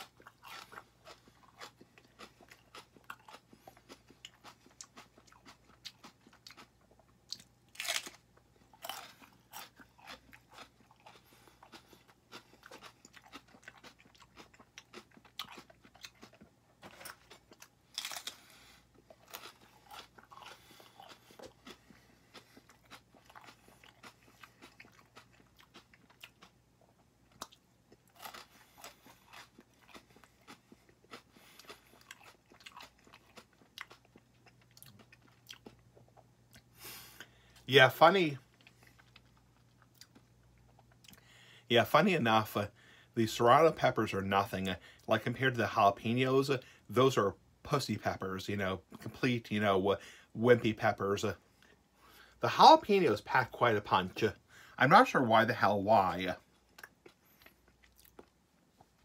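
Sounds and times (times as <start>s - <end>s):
chewing crunches: 0.0s - 36.8s, 38.4s - 41.4s, 56.6s - 59.0s.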